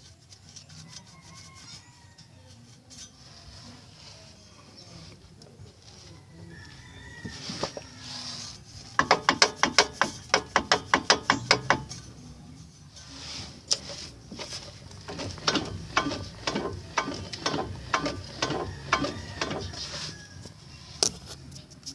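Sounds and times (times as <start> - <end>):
drivetrain clunking: 14.4 - 20.0.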